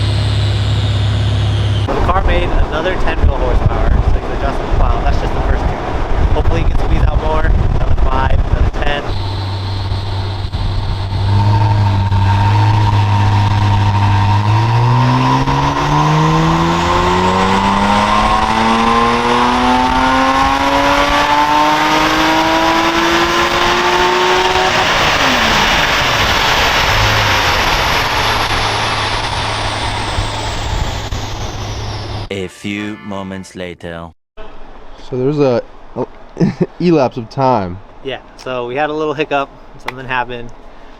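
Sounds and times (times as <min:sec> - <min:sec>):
car engine revving: 0:00.0 - 0:32.3.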